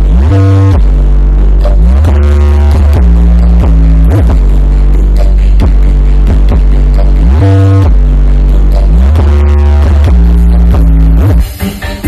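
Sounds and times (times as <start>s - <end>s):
loud bass-heavy music: 0.0s - 12.0s.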